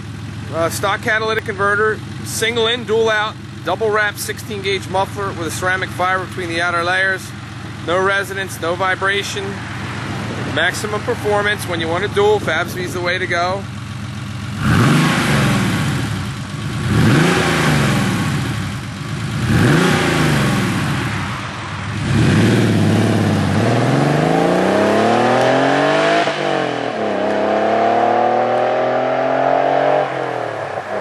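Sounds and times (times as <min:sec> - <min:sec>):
car engine revving and accelerating: 0:09.1 - 0:12.8, 0:14.5 - 0:31.0.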